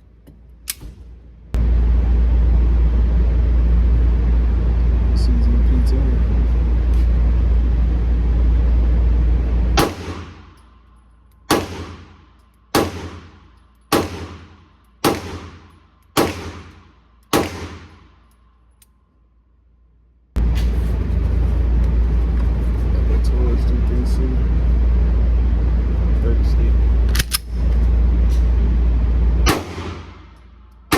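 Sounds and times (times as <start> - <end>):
steady low rumble: 0.0 - 30.9
handgun shots: 9.8 - 10.6, 11.5 - 18.2, 29.4 - 30.9.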